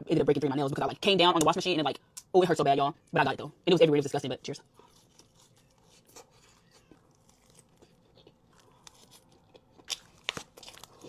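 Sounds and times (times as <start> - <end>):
quiet chewing with clicks: 4.8 - 11.0
crunchy bites: 5.0 - 11.0.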